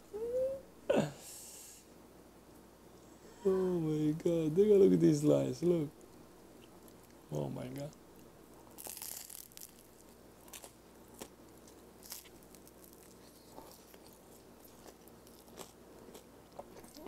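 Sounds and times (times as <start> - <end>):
faint chewing with crunches: 6.0 - 17.0
bite into crisp bread: 8.7 - 17.0.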